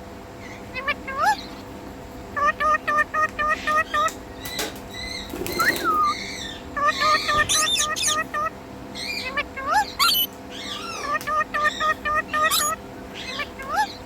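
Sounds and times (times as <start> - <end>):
parrot chirping: 0.4 - 1.7, 2.3 - 4.2, 5.0 - 14.0
harsh high squawks: 6.8 - 14.0
parrot rising whistles: 7.0 - 8.5, 10.0 - 10.3.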